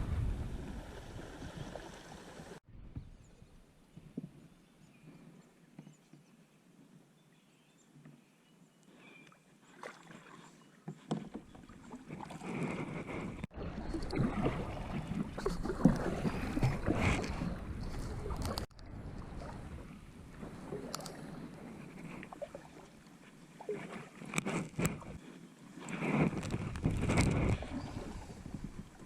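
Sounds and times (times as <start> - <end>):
water sloshing and splashing: 0.0 - 2.6, 9.6 - 29.0
lifejacket rubbing against camera: 11.9 - 13.5, 15.4 - 18.7, 21.0 - 22.5, 23.6 - 28.9.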